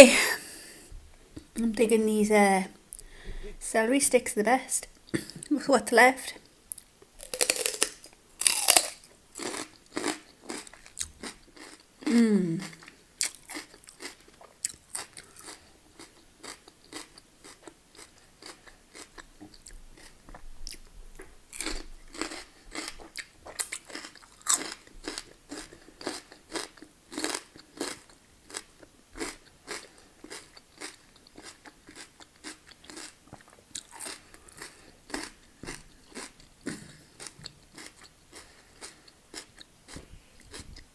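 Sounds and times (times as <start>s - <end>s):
crunchy celery chewing: 7.2s - 20.9s, 21.5s - 40.7s.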